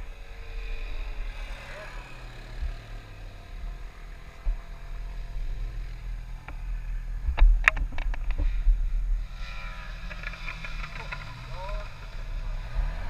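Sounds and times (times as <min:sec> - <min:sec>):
motorcycle engine rumble: 0:00.0 - 0:13.0
sharp knocks and rattles: 0:07.2 - 0:08.7, 0:09.4 - 0:12.2.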